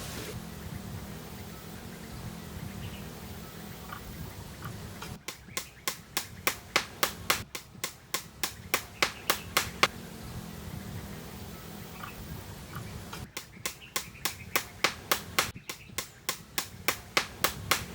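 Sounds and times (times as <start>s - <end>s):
hand tool knocking: 5.3s - 9.9s, 13.4s - 17.9s.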